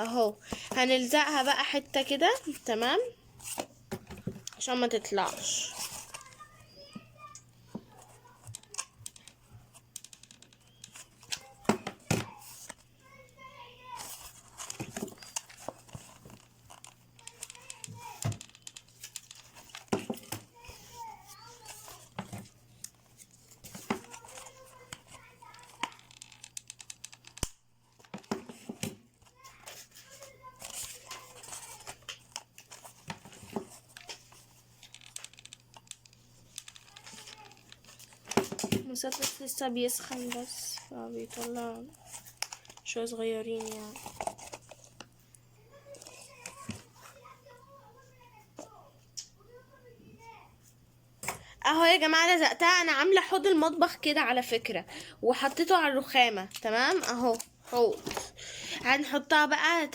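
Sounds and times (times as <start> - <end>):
handling plastic and cardboard: 0.0 - 48.8, 55.4 - 58.4
plastic bottle crinkling: 29.7 - 45.1.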